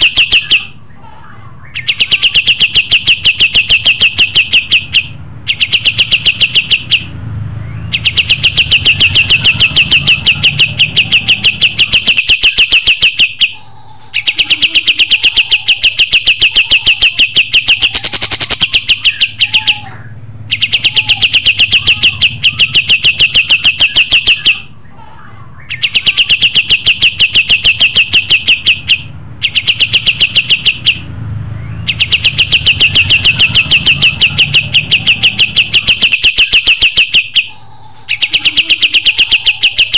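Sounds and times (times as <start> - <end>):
songbird singing high notes: 25.6 - 39.9.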